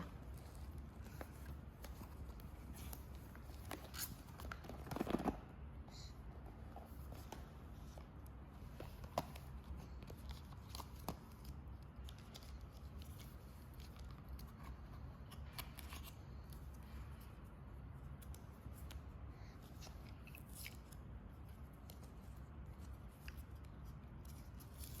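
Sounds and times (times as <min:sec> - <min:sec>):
low steady hum: 0:00.0 - 0:25.0
clicks and rustles of packaging: 0:00.4 - 0:05.5.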